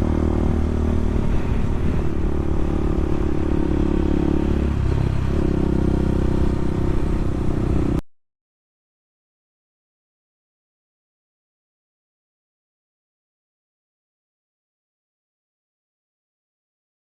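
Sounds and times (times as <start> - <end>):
dirt bike engine running: 0.0 - 8.0.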